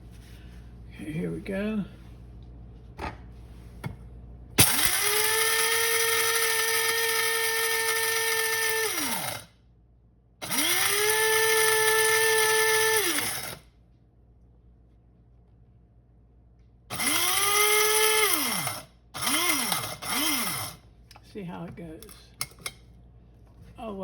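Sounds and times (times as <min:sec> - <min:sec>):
electric coffee grinder whining: 0:04.6 - 0:09.5, 0:10.4 - 0:13.6, 0:16.9 - 0:20.8.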